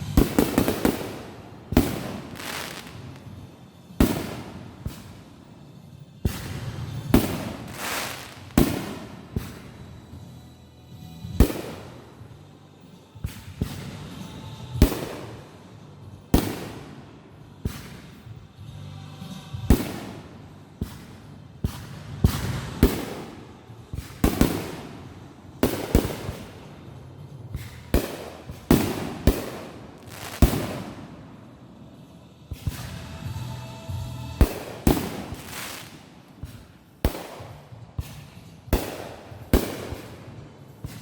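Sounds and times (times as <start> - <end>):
fireworks bangs: 0.0 - 3.4, 4.0 - 5.3, 6.2 - 9.8, 11.4 - 12.2, 13.3 - 15.6, 16.3 - 17.1, 19.6 - 27.0, 27.6 - 31.4, 34.4 - 41.0.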